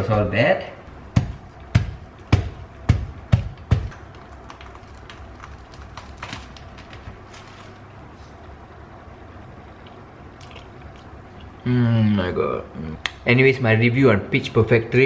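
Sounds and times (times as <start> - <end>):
sharp knocks on fruit: 1.2 - 3.9.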